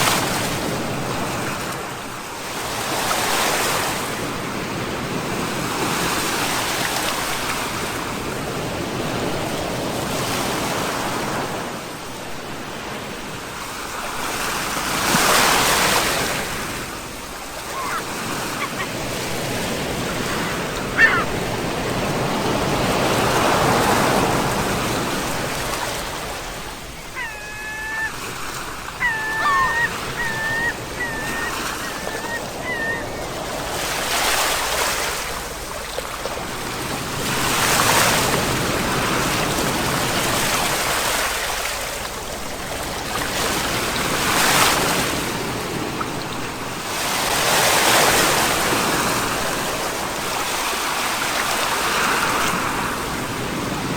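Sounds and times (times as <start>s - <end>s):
sea waves breaking: 0.0s - 45.9s
brief pitched animal calls: 17.6s - 19.1s, 20.2s - 21.4s, 27.0s - 33.3s.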